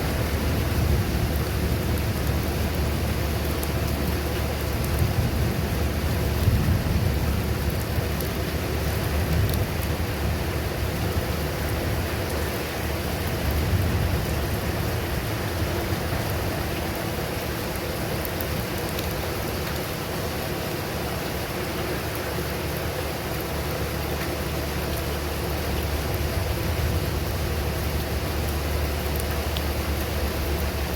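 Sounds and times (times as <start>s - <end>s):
low thunder rumble: 0.0s - 17.8s, 25.6s - 30.9s
steady rain falling: 0.0s - 30.9s.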